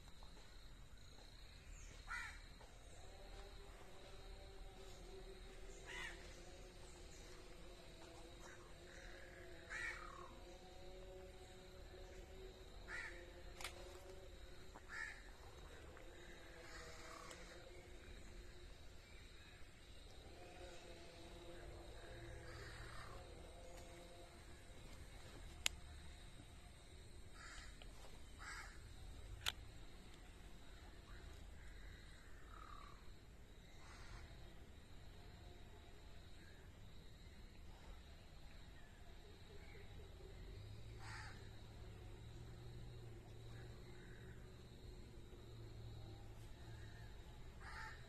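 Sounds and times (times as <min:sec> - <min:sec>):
faint bird calls: 0:01.7 - 0:03.1, 0:05.7 - 0:07.4, 0:08.4 - 0:10.4, 0:14.8 - 0:17.8.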